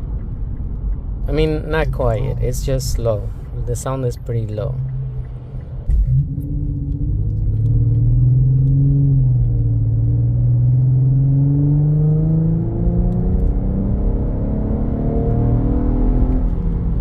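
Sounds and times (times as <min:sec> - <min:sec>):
car engine accelerating inside cabin: 0:04.5 - 0:17.0.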